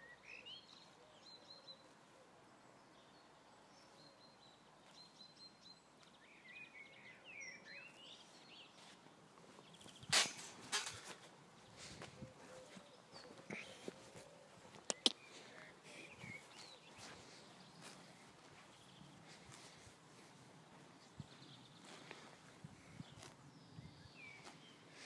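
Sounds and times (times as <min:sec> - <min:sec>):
low outdoor hiss: 0:00.0 - 0:25.0
small birds chirping: 0:00.0 - 0:25.0
loud crunching rustles: 0:08.8 - 0:15.6, 0:16.3 - 0:23.6.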